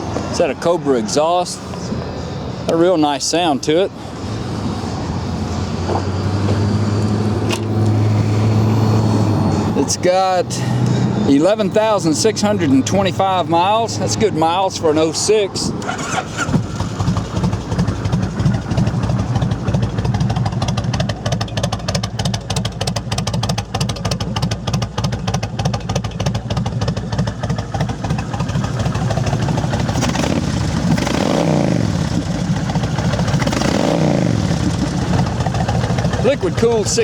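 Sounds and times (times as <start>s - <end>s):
motorcycle engine idling: 15.8s - 37.0s
motorcycle throttle blips: 15.8s - 37.0s.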